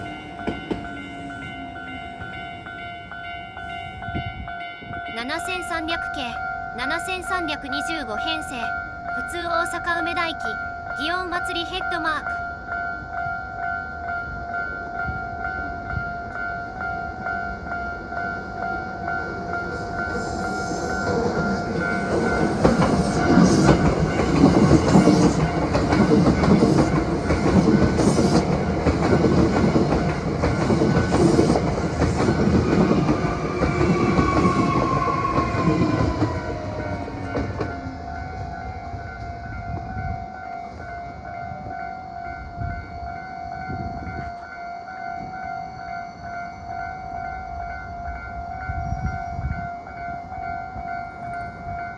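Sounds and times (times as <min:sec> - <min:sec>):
train whine: 0:00.0 - 0:06.9, 0:12.3 - 0:51.9
steady high ringing tone: 0:00.0 - 0:51.9
train wheels clattering over rail joints: 0:20.9 - 0:37.9.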